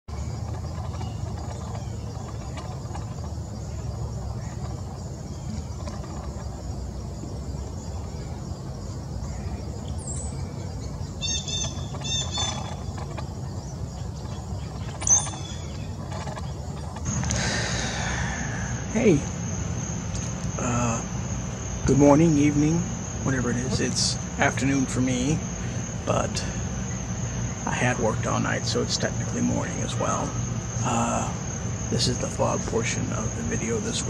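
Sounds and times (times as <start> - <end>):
steady low rumble: 0.1 - 34.0
high hiss: 17.1 - 34.0.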